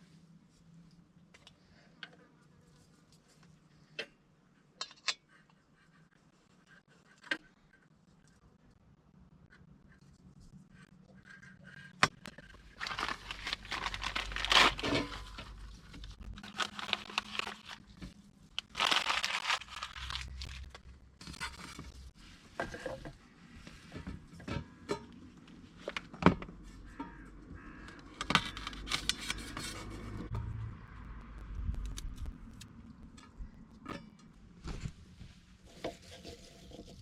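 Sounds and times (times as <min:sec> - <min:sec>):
rustling crinkling and scraping: 0:11.7 - 0:30.3, 0:33.1 - 0:37.0
objects clicking and knocking: 0:27.9 - 0:30.6.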